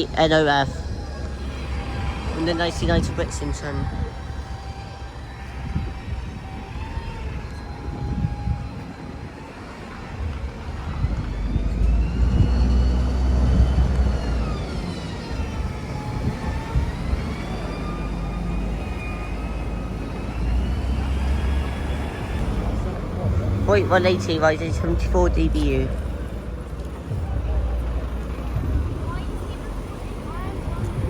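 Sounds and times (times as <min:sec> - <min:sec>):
bus engine rumble: 0:00.0 - 0:31.0.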